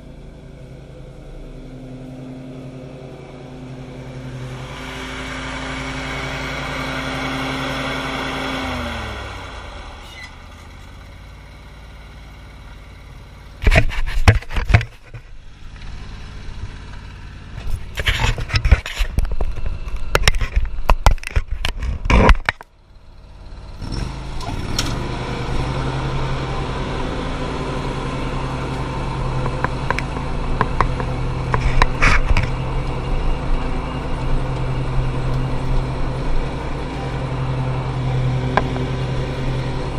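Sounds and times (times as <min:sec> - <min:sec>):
engine running: 0:00.0 - 0:39.9
loud engine knocks and clattering: 0:13.5 - 0:22.7, 0:28.7 - 0:39.9.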